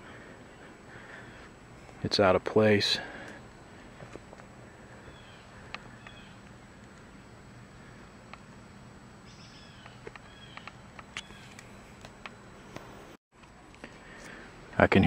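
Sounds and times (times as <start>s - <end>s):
bird chirping: 4.7s - 6.6s, 9.2s - 11.9s.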